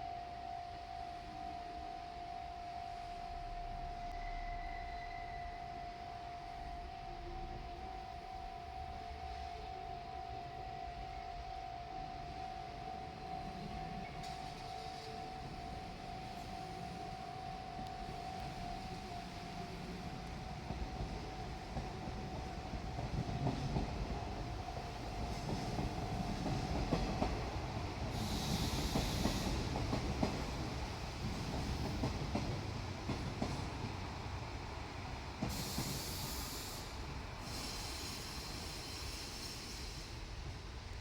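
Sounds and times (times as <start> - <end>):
diesel train rumbling past: 0.0 - 41.0
high hiss bursts: 28.1 - 29.8, 35.5 - 40.5.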